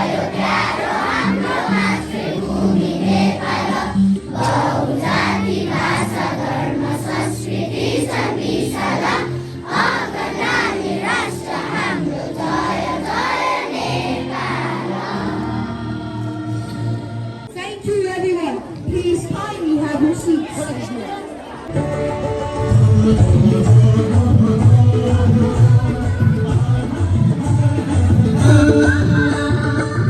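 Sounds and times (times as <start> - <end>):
children singing: 0.0 - 17.0
recorded music accompaniment: 0.0 - 19.6, 21.7 - 30.0.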